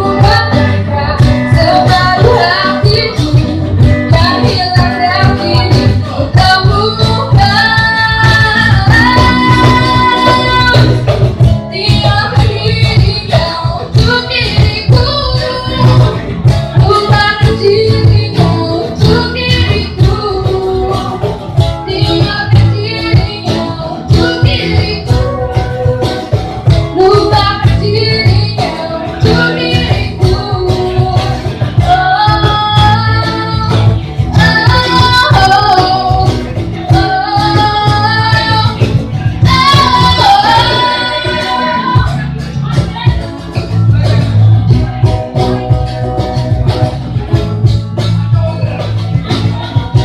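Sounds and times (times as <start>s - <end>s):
indie band with singing: 0.0s - 50.0s.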